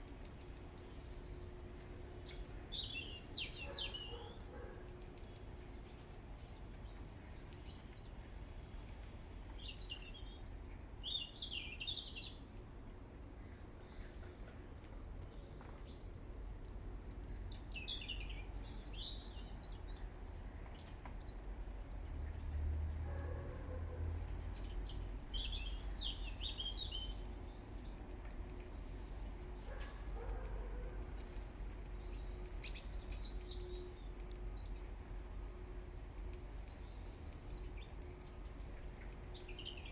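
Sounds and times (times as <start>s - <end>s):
small birds chirping: 0.2s - 12.5s, 13.2s - 35.1s, 35.9s - 39.9s.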